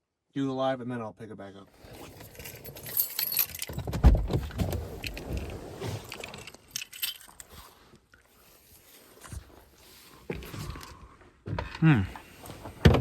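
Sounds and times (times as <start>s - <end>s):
handling knocks and rattles: 2.0s - 7.6s
keys jangling: 2.2s - 4.0s, 6.2s - 7.5s.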